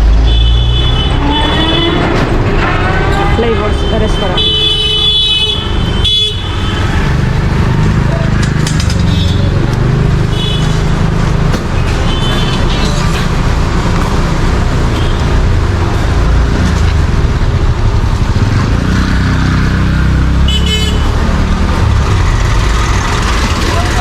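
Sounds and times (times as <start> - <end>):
vehicle engines rumbling: 0.0 - 24.0
car horn toot: 2.8 - 7.0, 20.5 - 21.1.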